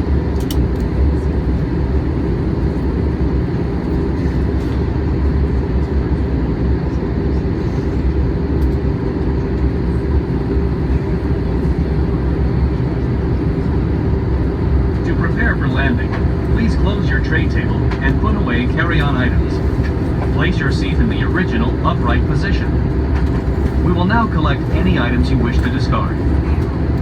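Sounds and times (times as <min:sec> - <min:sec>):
aircraft cabin engine noise: 0:00.0 - 0:27.0.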